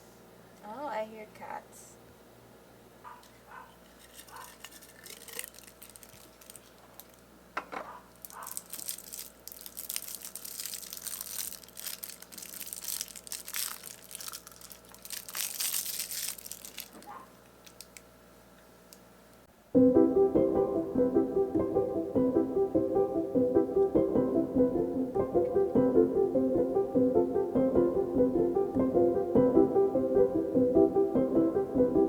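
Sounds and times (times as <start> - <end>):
crinkling and rustling: 3.2 - 18.1.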